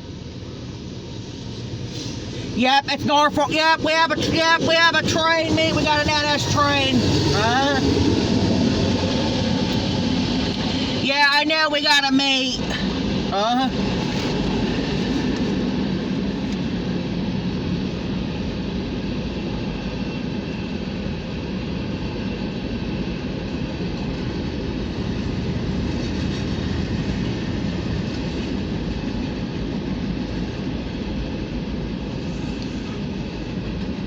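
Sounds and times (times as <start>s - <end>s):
freight train wheels on rails: 0.0s - 34.0s.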